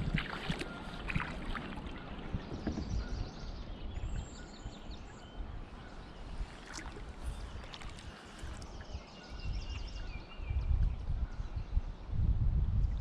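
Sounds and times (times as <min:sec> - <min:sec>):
paddle splashes: 0:00.0 - 0:04.0, 0:05.0 - 0:09.0
wind rumble on microphone: 0:00.0 - 0:13.0.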